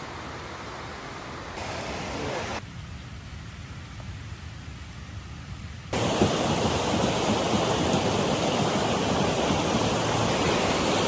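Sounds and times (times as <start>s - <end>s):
fast-flowing creek rushing: 1.3s - 2.6s, 6.0s - 11.0s.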